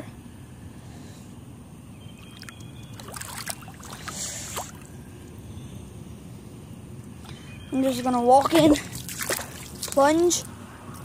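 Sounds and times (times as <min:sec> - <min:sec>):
light splashes in shallow water: 0:02.3 - 0:04.9, 0:08.8 - 0:10.2.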